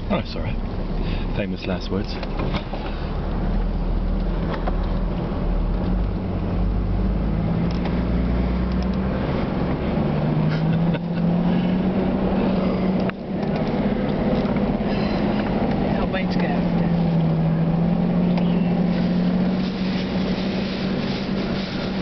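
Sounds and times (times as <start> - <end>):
vehicle engine running: 0.0 - 22.0
vehicle knocks and rattles: 2.0 - 3.0, 4.3 - 5.1.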